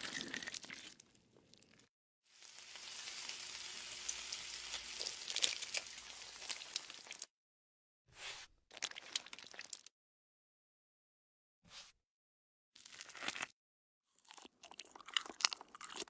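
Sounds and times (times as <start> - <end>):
food sizzling in a pan: 2.3 - 7.3.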